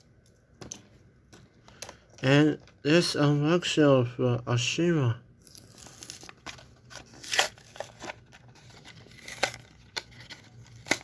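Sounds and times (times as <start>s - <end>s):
packaging being torn and crinkled: 5.4s - 11.0s.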